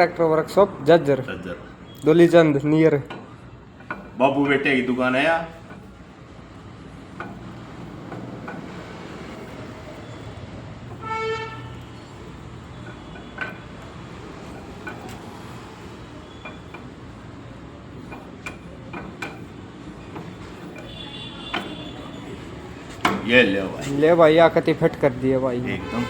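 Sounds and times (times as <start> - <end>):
vehicle horn honk: 11.0 - 11.9, 20.8 - 22.1, 25.7 - 26.0.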